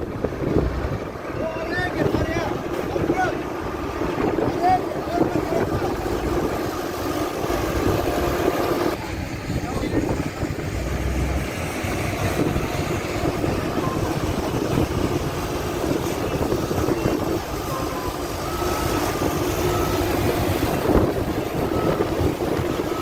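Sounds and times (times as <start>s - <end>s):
heavy vehicle engine running: 0.0s - 23.0s
reversing alarm beeping: 5.0s - 9.0s, 11.9s - 23.0s.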